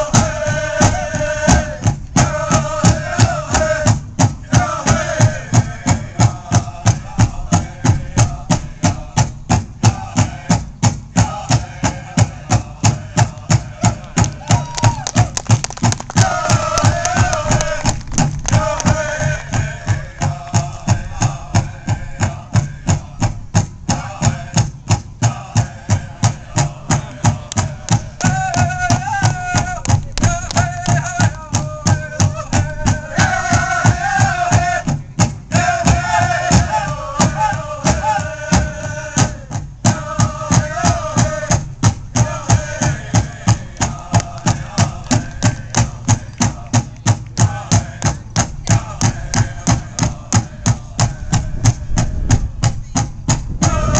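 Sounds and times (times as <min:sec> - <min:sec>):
big drum steady beat: 0:00.0 - 0:53.9
singers' high voices: 0:11.2 - 0:15.3, 0:35.5 - 0:41.6, 0:53.6 - 0:53.9.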